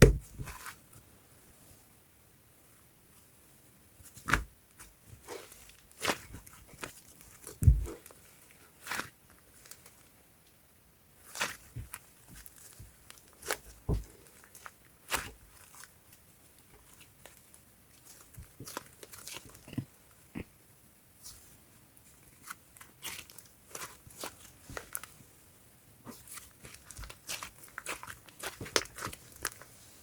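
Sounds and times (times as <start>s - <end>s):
slime crackling and popping: 5.2s - 9.8s, 11.2s - 15.9s, 22.4s - 25.1s, 26.1s - 29.6s.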